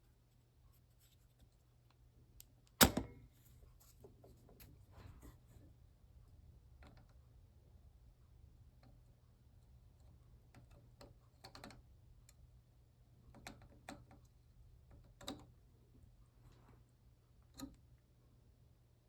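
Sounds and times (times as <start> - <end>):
faint low hum: 0.0 - 19.0
solder sucker cocked and fired: 2.7 - 3.2.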